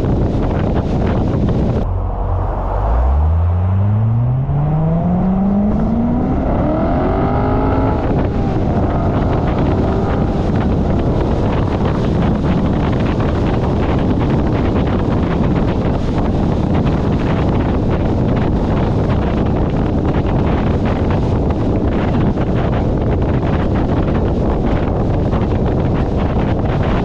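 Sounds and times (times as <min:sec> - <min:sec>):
wind noise on microphone: 0:00.0 - 0:27.0
engine accelerating: 0:01.7 - 0:15.0.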